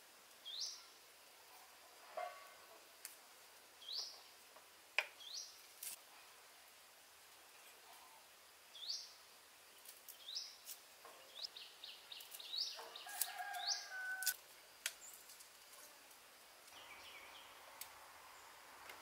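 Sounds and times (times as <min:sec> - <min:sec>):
bird chirping: 0:03.8 - 0:04.4, 0:08.7 - 0:14.2, 0:16.7 - 0:17.7.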